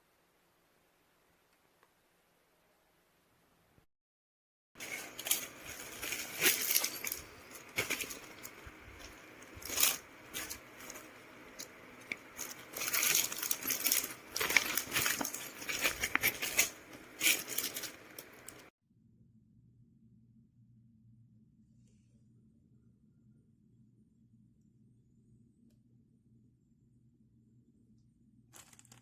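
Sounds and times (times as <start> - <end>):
fabric bag crinkling and rustling: 4.8 - 18.7, 28.5 - 29.0.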